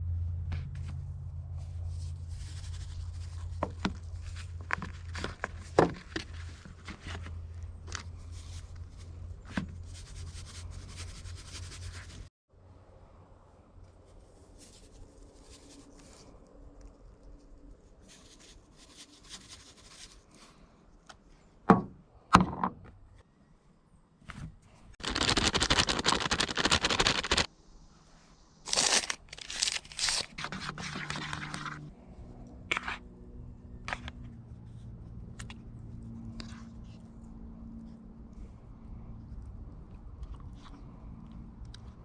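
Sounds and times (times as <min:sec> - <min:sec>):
low steady hum: 0:00.0 - 0:21.1
short scrapes and crinkles: 0:01.6 - 0:12.3, 0:14.0 - 0:16.4, 0:17.4 - 0:20.7, 0:28.6 - 0:31.9, 0:32.7 - 0:33.0
scraping tearing noise: 0:25.0 - 0:27.5, 0:28.6 - 0:31.9.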